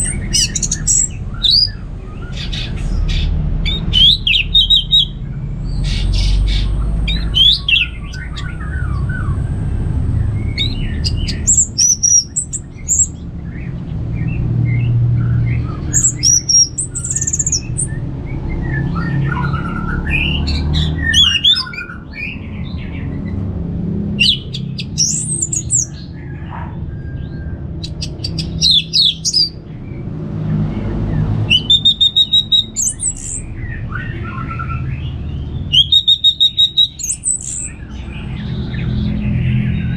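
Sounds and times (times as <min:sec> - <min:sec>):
thrush singing: 0:00.0 - 0:13.2, 0:24.2 - 0:26.1, 0:27.9 - 0:29.6, 0:31.3 - 0:39.9.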